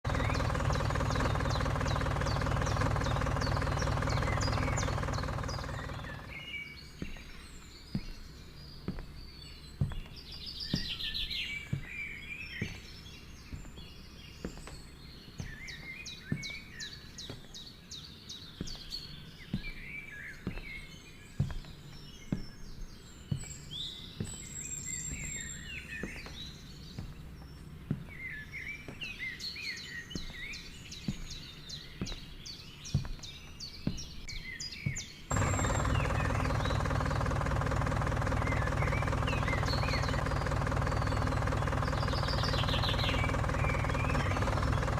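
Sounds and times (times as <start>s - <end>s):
small birds chirping: 0.0s - 44.9s
loud steady hum: 0.1s - 6.5s, 35.3s - 44.9s.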